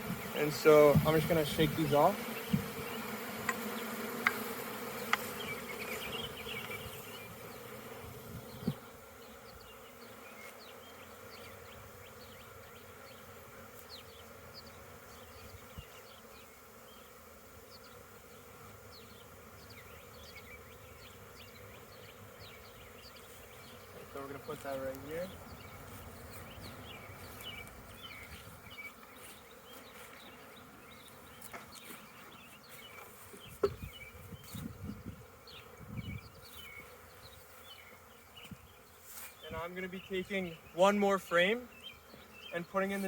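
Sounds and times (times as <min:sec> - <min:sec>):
honeybees buzzing: 0:00.0 - 0:43.0
sharp knocks on hive frame: 0:03.4 - 0:05.5.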